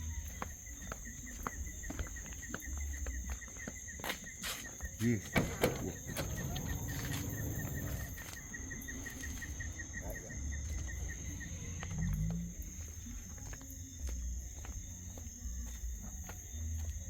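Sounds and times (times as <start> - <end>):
insect chirps: 0.0 - 17.0
insects buzzing: 0.0 - 17.0.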